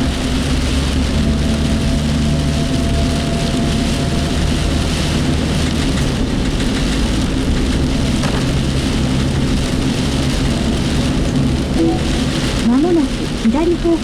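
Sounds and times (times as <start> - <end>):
engine and tyre hum: 0.0 - 12.7
heavy rain on vehicle roof: 0.0 - 14.0.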